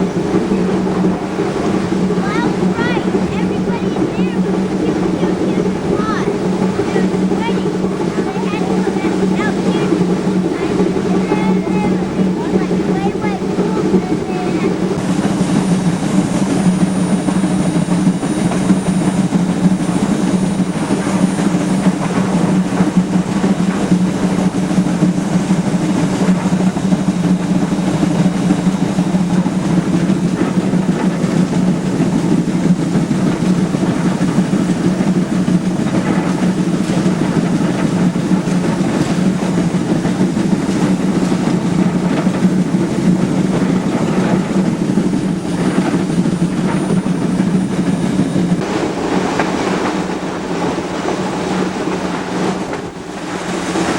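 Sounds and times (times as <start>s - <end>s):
steam train rumbling: 0.0s - 53.9s.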